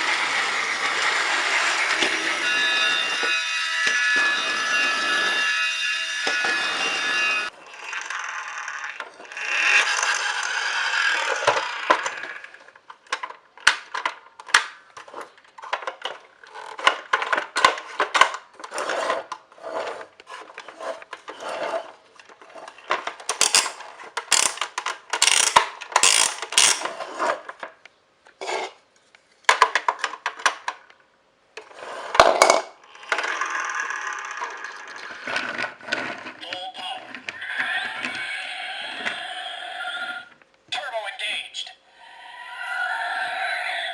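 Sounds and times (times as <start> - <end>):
toy parts rubbing and scraping: 0.0 - 12.7, 17.8 - 27.5, 28.4 - 28.8, 31.7 - 39.9
small hard pieces clacking: 22.9 - 26.9.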